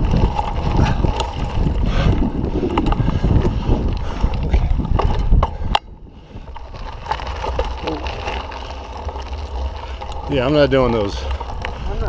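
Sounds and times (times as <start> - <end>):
bike clicks and rattles: 0.0 - 12.0
wind buffeting microphone: 0.0 - 12.0.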